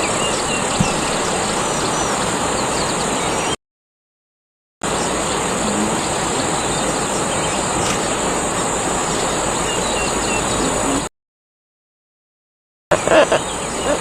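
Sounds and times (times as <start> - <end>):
high insect drone: 0.0 - 3.5, 4.9 - 11.1
faint bird chirps: 0.0 - 3.6, 9.0 - 11.1, 12.9 - 14.0.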